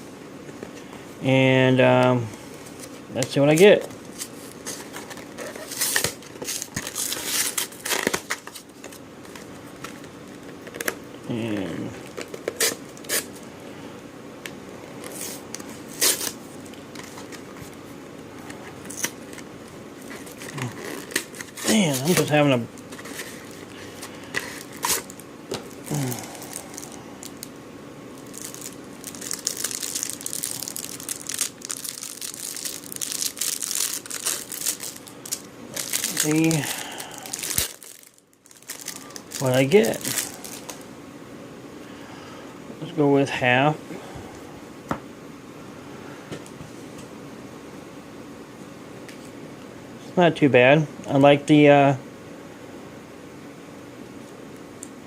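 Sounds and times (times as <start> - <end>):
card packaging tearing and crinkling: 3.3 - 13.4, 15.0 - 17.6, 18.4 - 27.5, 28.2 - 40.8.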